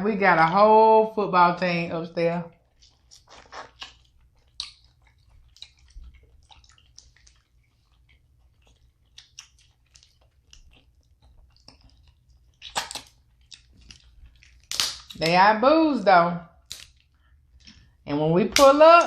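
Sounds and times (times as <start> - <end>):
close chewing and smacking: 2.5 - 15.2, 16.5 - 18.0
food crunching: 2.5 - 15.2, 16.6 - 18.0.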